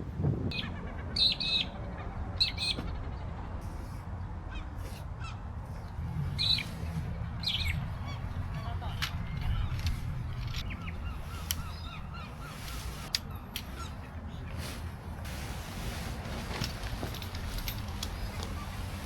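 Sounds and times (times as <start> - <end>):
birds cawing: 4.5 - 14.8
steady low rumble: 5.2 - 19.0.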